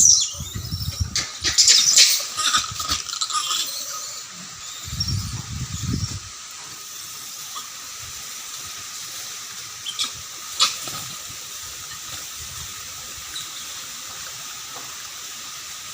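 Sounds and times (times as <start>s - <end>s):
monkey squealing: 0.0s - 6.3s, 9.8s - 11.0s
steady background hiss: 0.0s - 15.9s.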